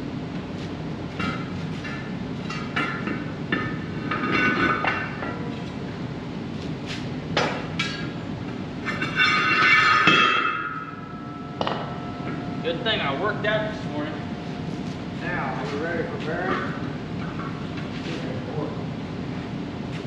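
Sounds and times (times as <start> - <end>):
sharp metal clanks: 8.9 - 12.4.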